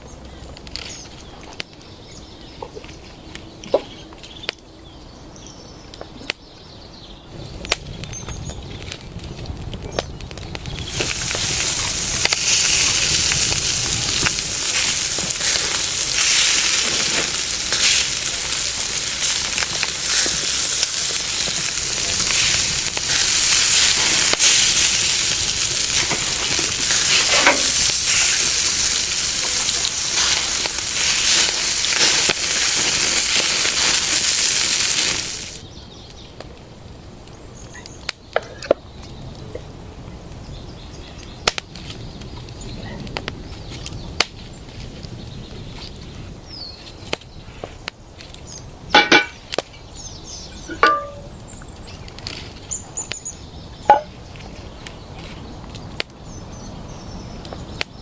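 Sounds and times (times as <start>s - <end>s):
meat sizzling in a pan: 10.9s - 35.6s.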